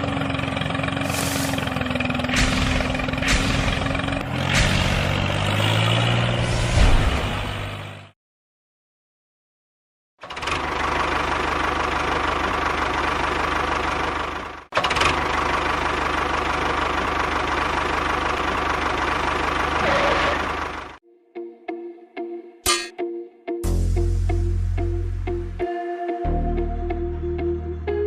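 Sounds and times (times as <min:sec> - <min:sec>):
engine running with low pulsing: 0:00.0 - 0:05.9, 0:10.2 - 0:21.0.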